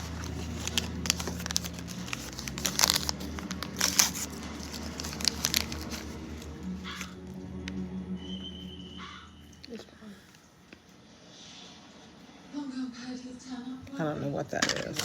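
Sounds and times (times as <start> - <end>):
plastic wrapper crinkling and tearing: 0.0 - 7.2, 14.6 - 15.0.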